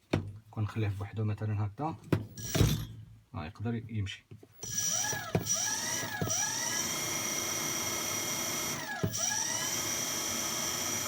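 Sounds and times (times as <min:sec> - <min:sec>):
electric motor whining: 0:04.6 - 0:11.0.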